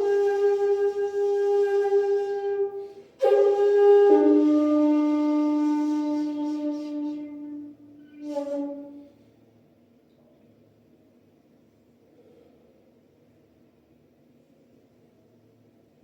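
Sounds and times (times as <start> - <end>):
bamboo flute long breathy notes: 0.0 - 9.5.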